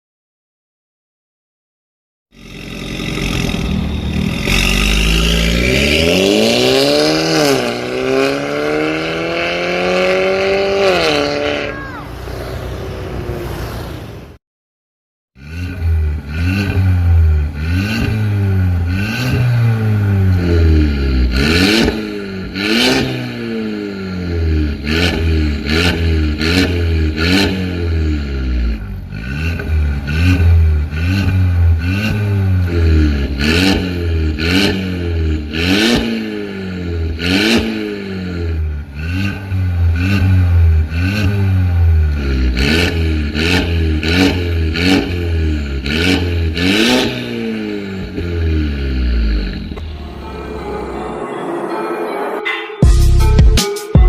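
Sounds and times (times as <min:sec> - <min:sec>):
car engine revving: 0:02.3 - 0:14.4, 0:15.4 - 0:52.2
exhaust cracks: 0:02.4 - 0:08.4, 0:38.9 - 0:50.6.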